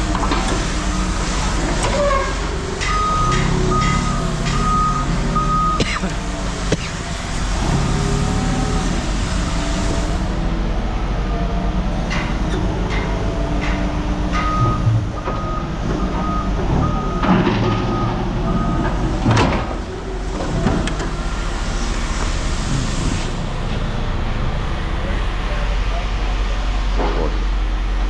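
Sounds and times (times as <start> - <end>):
reversing alarm beeps: 2.9 - 5.8, 14.3 - 18.9.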